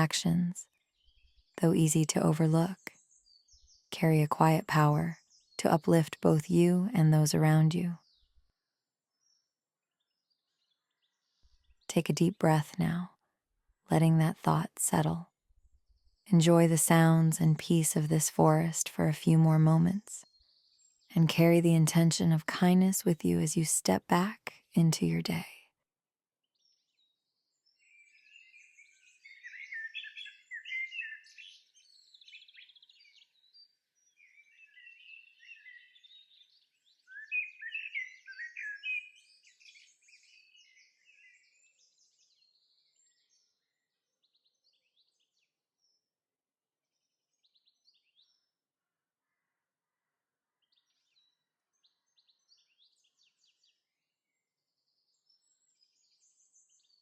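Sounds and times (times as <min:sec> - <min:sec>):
songbirds singing and chirping: 0:00.2 - 0:08.4, 0:15.8 - 0:25.4, 0:26.6 - 0:46.1, 0:46.9 - 0:48.5, 0:50.6 - 0:57.0.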